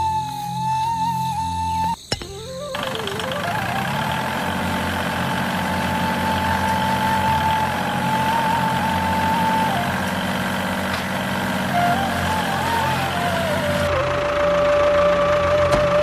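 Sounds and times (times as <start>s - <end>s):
motor whining: 2.2s - 14.2s.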